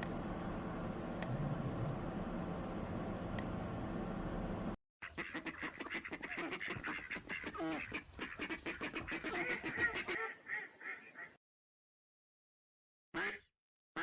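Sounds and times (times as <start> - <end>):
waterfowl honking and quacking: 5.0 - 11.4.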